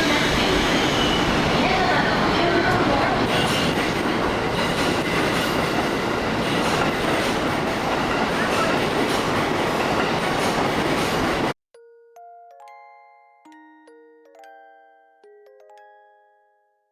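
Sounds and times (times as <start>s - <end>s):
electric train running: 0.0s - 11.5s
rail clicks: 0.0s - 11.5s
chime-like music notes: 11.7s - 16.9s.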